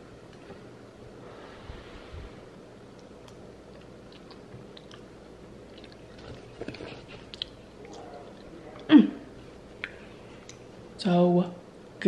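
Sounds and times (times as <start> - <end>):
person chewing: 2.9 - 8.8.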